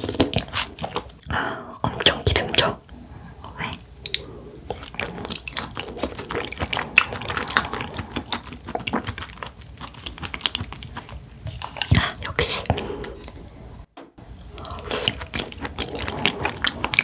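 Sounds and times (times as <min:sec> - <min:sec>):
close chewing with mouth smacks: 0:00.0 - 0:13.6, 0:14.4 - 0:17.0.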